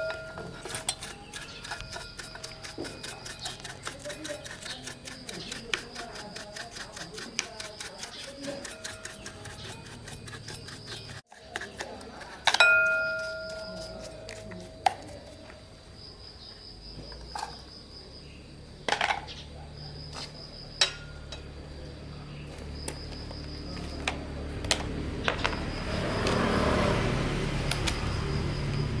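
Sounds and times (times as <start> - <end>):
metallic clinks of hand tools: 0.0 - 11.2, 12.4 - 15.4, 25.2 - 26.4.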